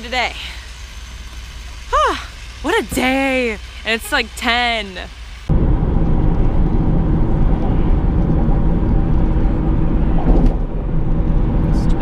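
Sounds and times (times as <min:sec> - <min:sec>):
car road rumble from inside: 0:05.5 - 0:12.0.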